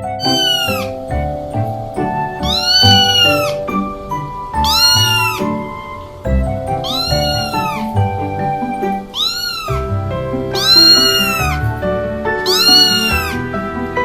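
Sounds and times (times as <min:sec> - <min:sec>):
background music: 0:00.0 - 0:14.0
cat meowing: 0:02.5 - 0:03.5, 0:09.1 - 0:09.7.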